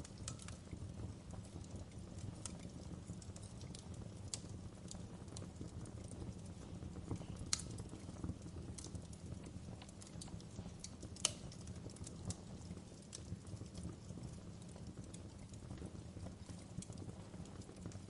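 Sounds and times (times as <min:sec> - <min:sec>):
fire crackles and pops: 0:00.0 - 0:18.0
low rumble of flames: 0:00.0 - 0:18.0.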